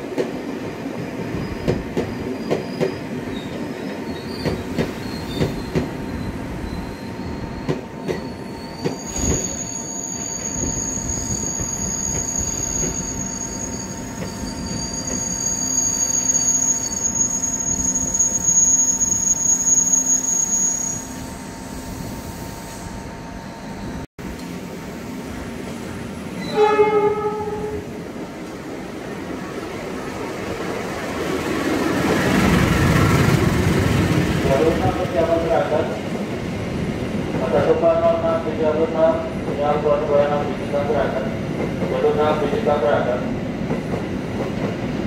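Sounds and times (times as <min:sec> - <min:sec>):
electric train rumbling and whining: 0:00.0 - 0:45.0
train horn: 0:26.4 - 0:27.9.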